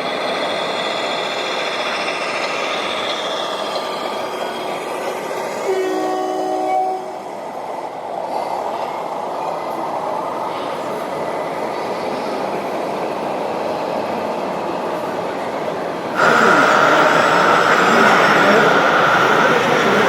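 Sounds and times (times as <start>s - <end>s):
horn-like tones: 5.6s - 7.3s.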